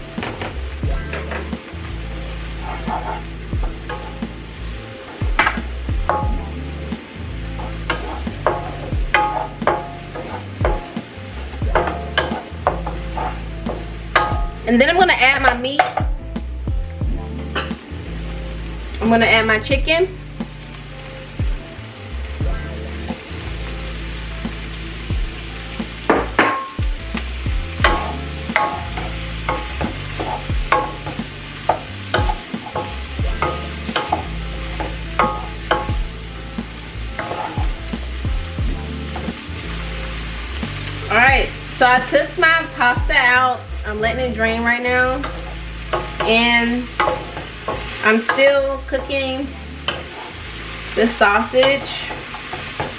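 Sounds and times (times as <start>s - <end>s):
onions sizzling in butter: 0.0s - 52.9s
utensil scraping a pan: 0.2s - 16.0s, 22.6s - 38.2s, 45.2s - 52.9s.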